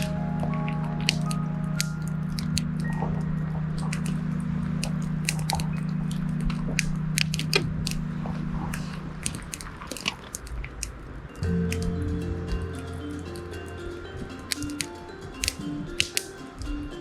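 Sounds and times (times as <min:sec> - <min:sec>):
steady low hum: 0:00.0 - 0:10.0, 0:10.6 - 0:17.0
campfire crackling and popping: 0:00.0 - 0:17.0.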